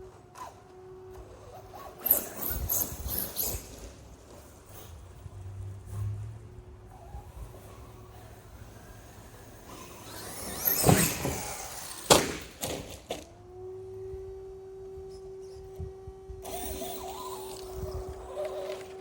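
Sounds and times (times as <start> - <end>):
electric motor whining: 6.9 - 19.0
toy truck crashing on landing: 10.0 - 13.3.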